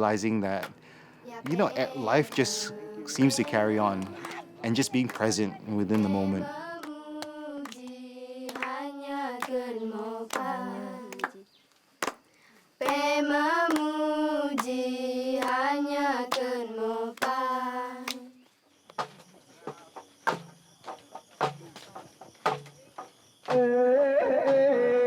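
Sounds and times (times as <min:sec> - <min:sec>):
voices chanting long notes: 0:00.0 - 0:11.5, 0:12.8 - 0:18.4, 0:23.5 - 0:25.0
sharp knocks: 0:19.0 - 0:23.6.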